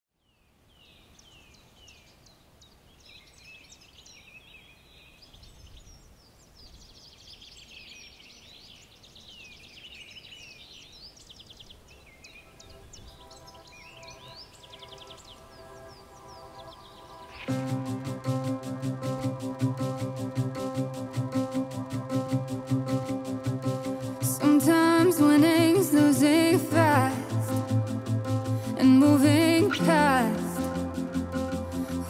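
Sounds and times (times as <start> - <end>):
songbirds singing: 0.2 - 17.6
soft music: 12.4 - 32.0.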